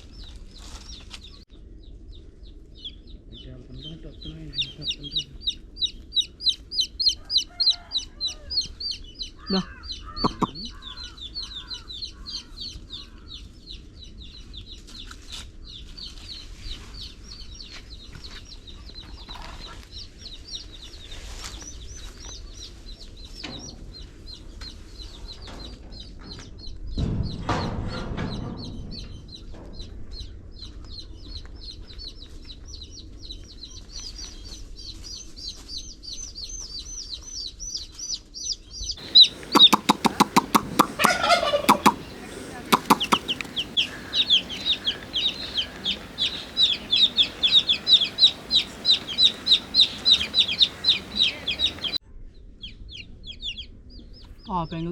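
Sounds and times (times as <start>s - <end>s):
chicks peeping: 2.1s - 23.5s, 30.6s - 52.0s
hen clucking: 6.2s - 12.4s, 39.0s - 52.0s.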